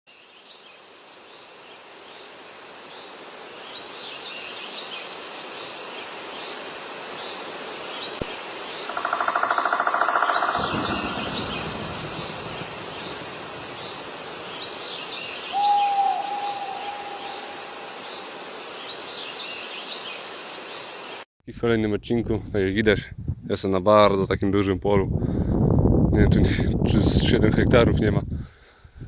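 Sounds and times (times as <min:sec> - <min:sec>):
small birds chirping: 0:07.2 - 0:20.4
rapidly pulsing buzz: 0:10.3 - 0:14.8.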